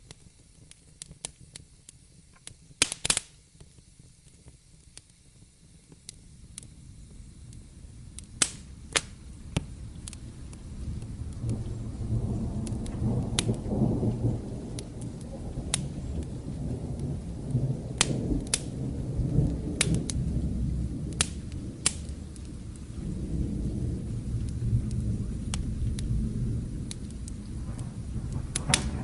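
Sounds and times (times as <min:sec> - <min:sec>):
fireplace crackling and popping: 0:00.0 - 0:29.0
steady rain: 0:00.0 - 0:29.0
distant thunder rumbling: 0:06.4 - 0:29.0.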